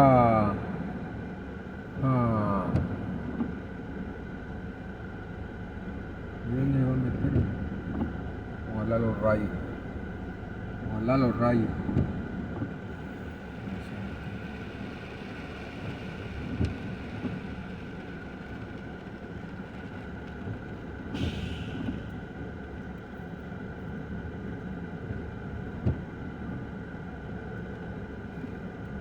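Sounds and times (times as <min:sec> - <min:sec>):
short hiss: 0:21.1 - 0:22.2.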